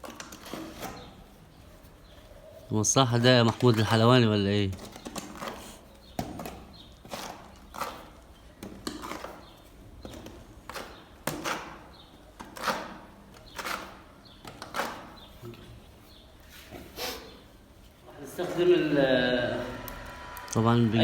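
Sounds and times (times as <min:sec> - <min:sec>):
putty knife scraping wall: 0:00.0 - 0:01.3, 0:03.4 - 0:15.4.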